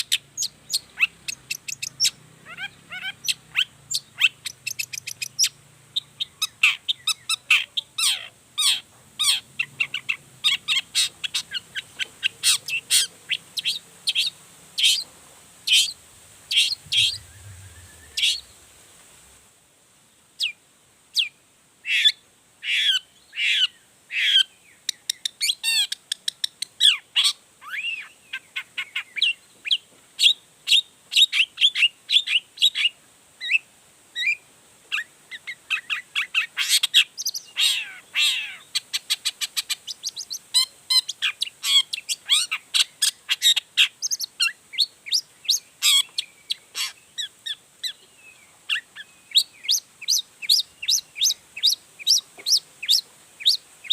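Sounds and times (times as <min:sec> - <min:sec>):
bird singing chirps and trills: 0:00.0 - 0:15.0, 0:15.7 - 0:18.7, 0:39.7 - 0:53.9.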